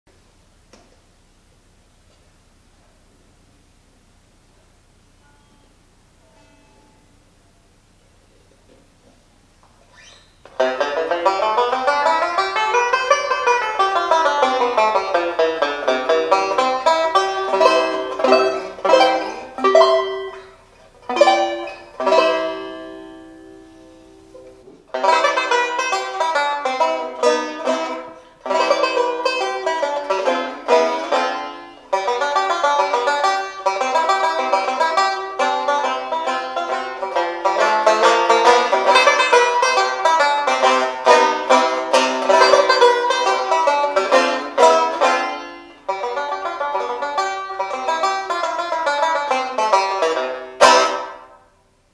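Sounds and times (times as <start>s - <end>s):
banjo picked and strummed: 10.5s - 51.5s.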